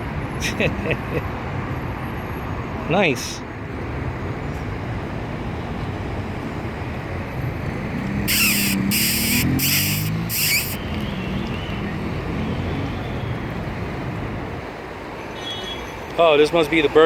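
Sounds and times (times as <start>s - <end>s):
city traffic noise: 0.0s - 17.0s
harsh hissing bursts: 8.3s - 10.8s.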